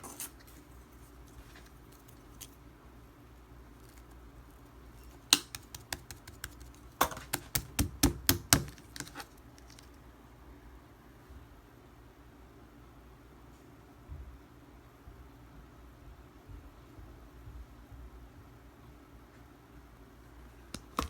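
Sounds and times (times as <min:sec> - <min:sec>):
slime squished with clicking pops: 0:05.2 - 0:09.2.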